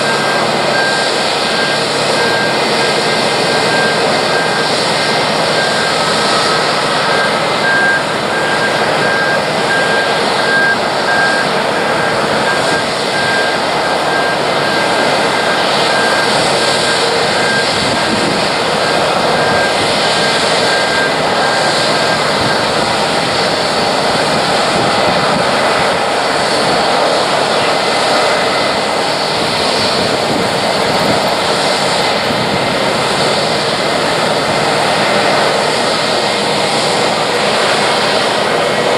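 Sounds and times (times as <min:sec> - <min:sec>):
jet engine roar: 0:00.0 - 0:38.9.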